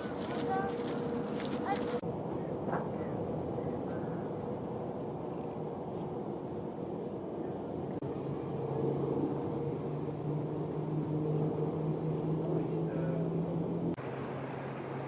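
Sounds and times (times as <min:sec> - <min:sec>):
low machine hum: 0:06.5 - 0:15.0.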